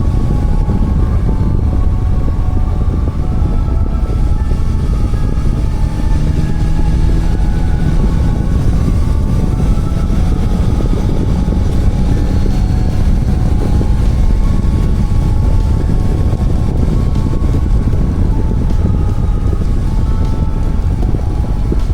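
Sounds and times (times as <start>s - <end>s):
motorcycle engine running: 0.0s - 21.9s
wind on microphone: 0.0s - 21.9s.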